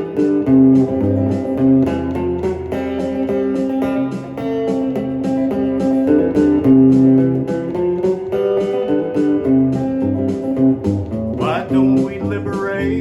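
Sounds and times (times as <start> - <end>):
guitar-led instrumental music: 0.0 - 13.0
rising guitar slide: 0.0 - 13.0
steady beat: 9.5 - 13.0
bass line: 10.6 - 13.0.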